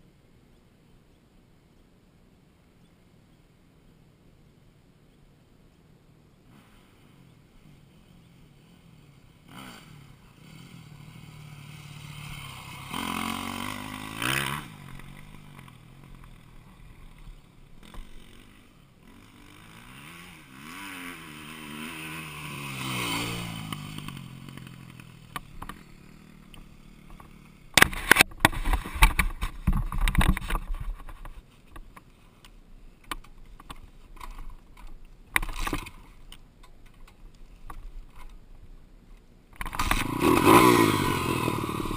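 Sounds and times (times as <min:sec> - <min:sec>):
dirt bike engine revving: 0:06.5 - 0:28.2, 0:39.6 - 0:41.9.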